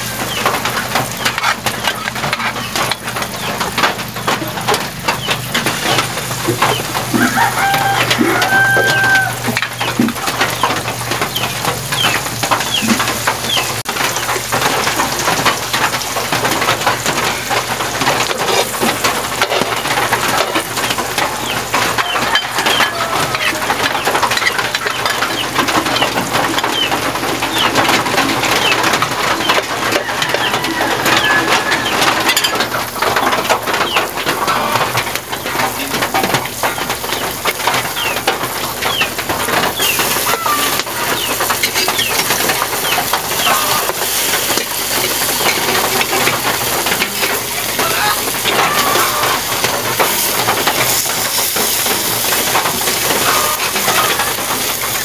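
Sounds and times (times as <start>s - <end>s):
fritters sizzling in oil: 0.0s - 55.0s.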